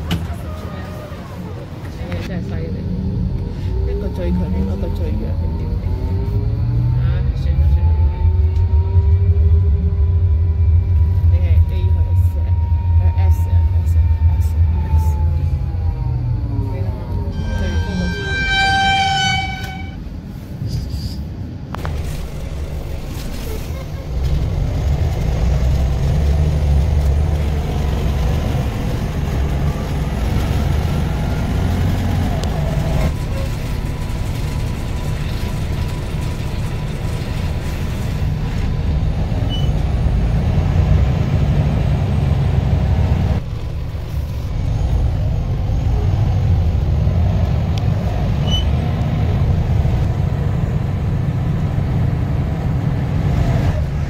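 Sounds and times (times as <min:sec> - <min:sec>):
vehicle interior rumble: 0:00.0 - 0:54.0.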